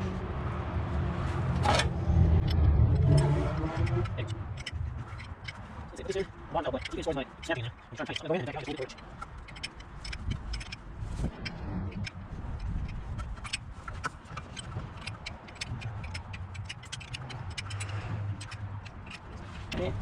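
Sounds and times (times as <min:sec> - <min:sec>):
metallic clicks from hand tools: 0:12.0 - 0:19.9.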